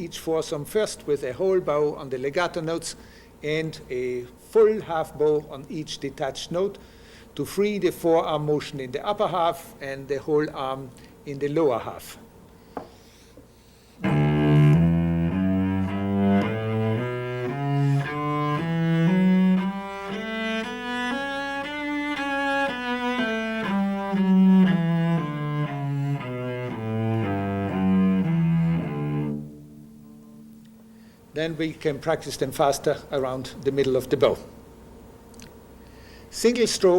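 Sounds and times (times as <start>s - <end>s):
cello playing a scale: 14.0s - 30.5s.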